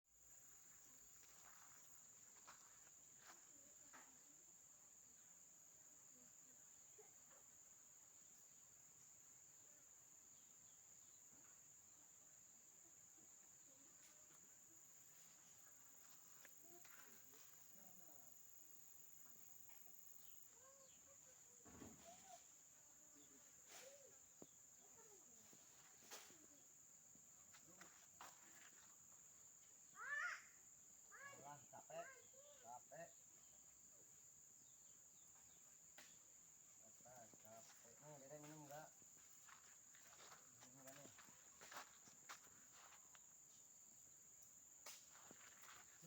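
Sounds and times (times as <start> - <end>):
high-pitched insect trilling: 13.7 - 46.0.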